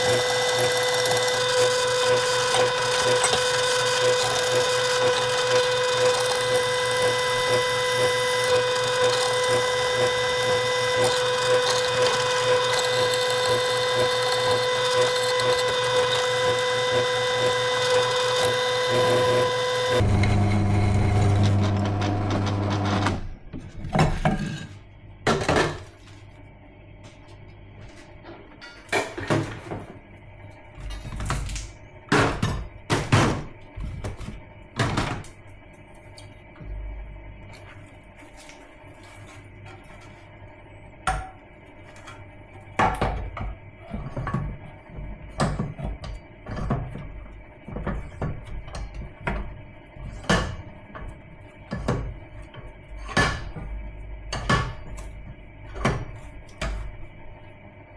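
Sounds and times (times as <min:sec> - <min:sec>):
electric drill drilling steel: 0:00.0 - 0:23.2.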